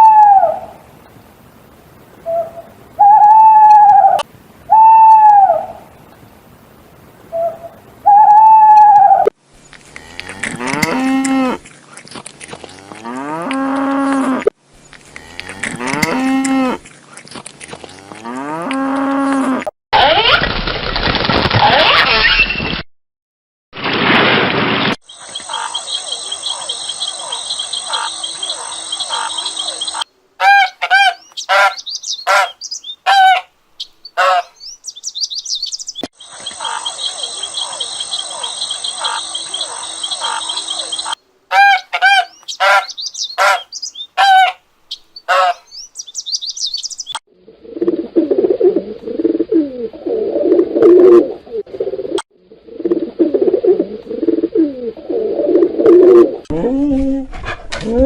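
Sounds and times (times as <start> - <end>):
low throaty bird calls: 2.2 - 5.8, 7.3 - 9.3, 25.1 - 55.4
clear bird calls sweeping in pitch: 25.1 - 33.4, 34.1 - 47.2
high bird chirping chorus: 25.1 - 47.2.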